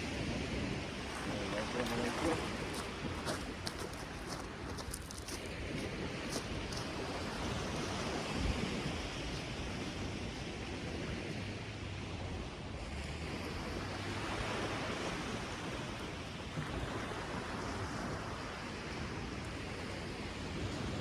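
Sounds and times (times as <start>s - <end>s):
waves breaking on beach: 0.0s - 21.0s.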